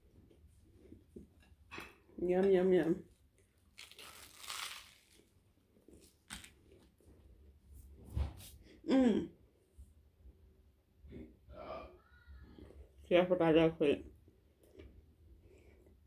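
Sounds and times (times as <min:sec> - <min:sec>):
sandwich bite crunch: 0:03.6 - 0:06.8.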